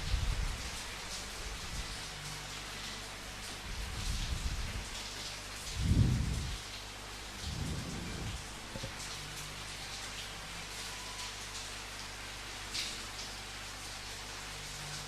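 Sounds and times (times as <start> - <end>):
rain pattering: 0.0 - 15.0
low rumbles: 7.4 - 9.0.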